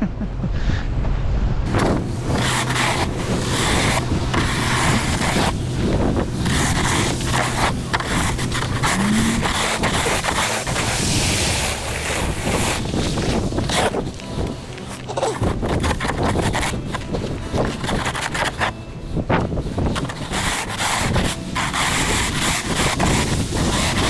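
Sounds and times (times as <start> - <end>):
wind buffeting microphone: 0.5 - 24.0
vehicle engine humming: 1.6 - 20.0.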